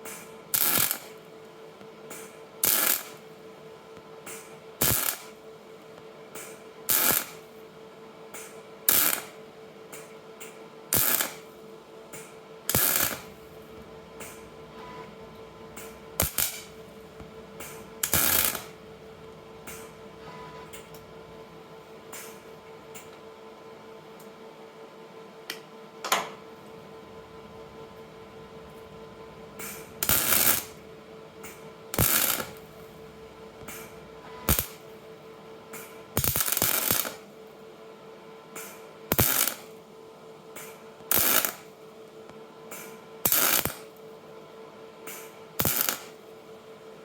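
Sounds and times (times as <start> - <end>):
welding bursts: 0.1 - 1.2, 2.2 - 3.2, 4.3 - 5.4, 6.4 - 7.4, 8.9 - 9.4, 11.0 - 11.5, 12.2 - 23.2, 26.4 - 37.3, 38.6 - 39.8, 41.1 - 41.7, 43.3 - 43.8, 45.1 - 46.2
steady hum: 11.0 - 38.5.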